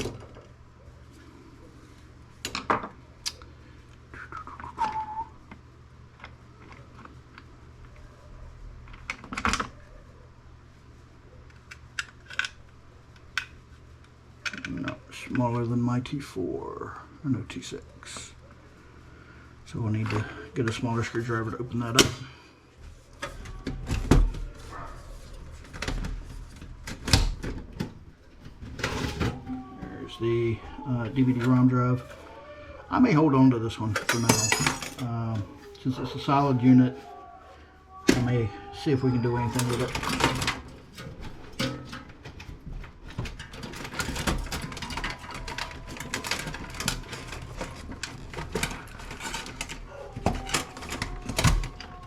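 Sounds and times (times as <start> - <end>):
tools and parts knocking and clicking: 34.0 - 35.1, 39.6 - 51.8.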